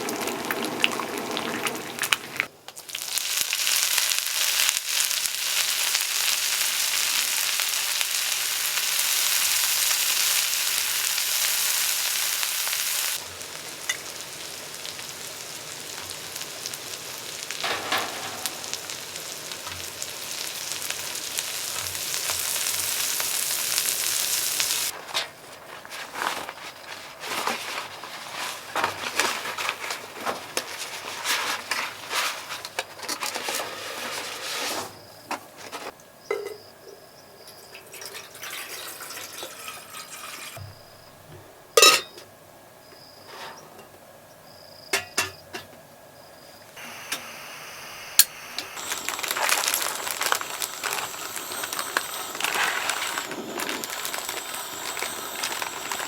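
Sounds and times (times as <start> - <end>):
food sizzling in a pan: 0.0 - 25.0, 37.8 - 41.0, 46.7 - 56.0.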